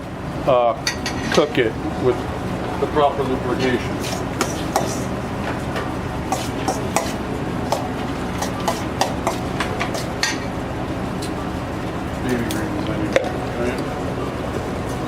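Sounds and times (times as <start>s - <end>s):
kitchen equipment hum: 0.0s - 15.0s
utensils and dishes clattering: 0.8s - 1.5s, 4.0s - 5.1s, 6.3s - 10.5s.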